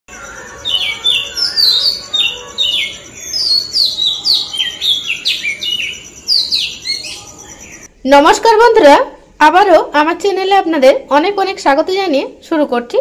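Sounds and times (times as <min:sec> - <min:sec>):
birds chirping: 0:00.1 - 0:08.0.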